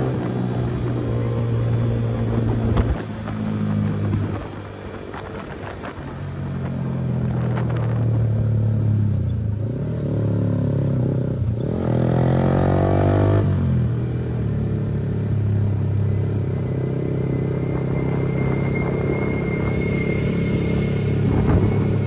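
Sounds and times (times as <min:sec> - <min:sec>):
motorcycle engine revving: 0:07.3 - 0:22.0.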